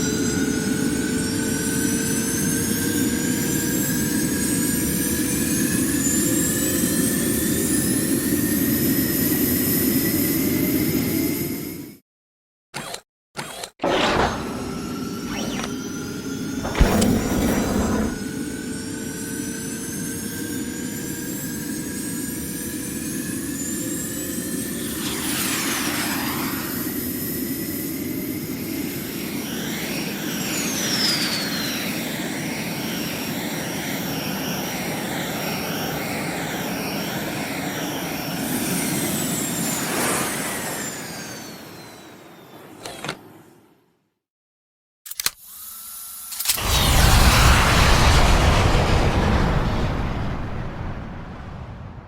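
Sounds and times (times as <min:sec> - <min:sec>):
warbling whine: 0:13.8 - 0:18.7, 0:24.2 - 0:27.8
rocket thruster rushing rumble: 0:16.5 - 0:18.4, 0:24.8 - 0:27.3, 0:46.6 - 0:52.0.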